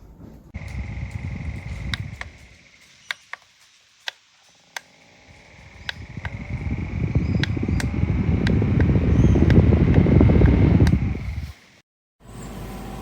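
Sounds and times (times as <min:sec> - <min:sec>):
fan airflow rushing: 0:00.6 - 0:02.8, 0:04.0 - 0:11.8
fan motor whine: 0:00.6 - 0:03.2, 0:04.0 - 0:13.0
desk fan clicks: 0:00.6 - 0:03.4, 0:04.8 - 0:11.4.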